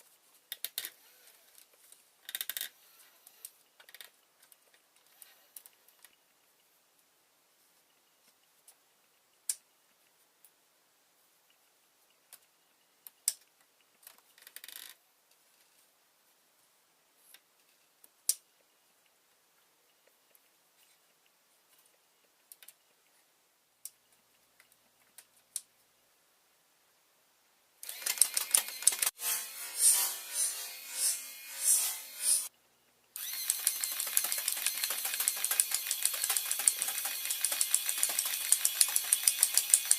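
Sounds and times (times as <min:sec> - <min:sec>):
pulses of noise: 0:27.9 - 0:32.5
plastic toy gun clicks: 0:33.4 - 0:39.9.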